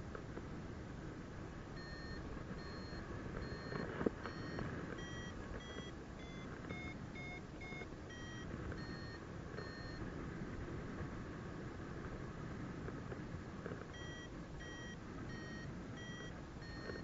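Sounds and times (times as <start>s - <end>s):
variometer beeping: 1.7s - 10.1s, 13.9s - 17.0s.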